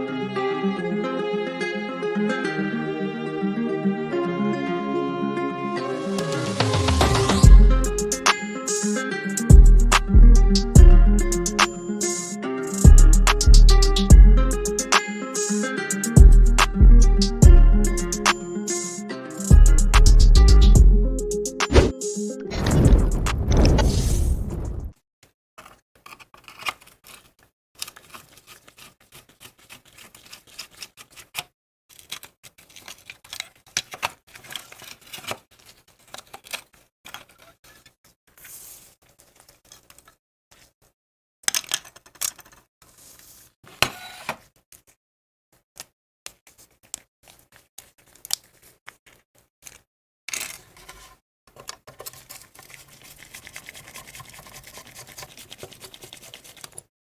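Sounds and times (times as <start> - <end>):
tools and small parts clicking: 41.5 - 42.7.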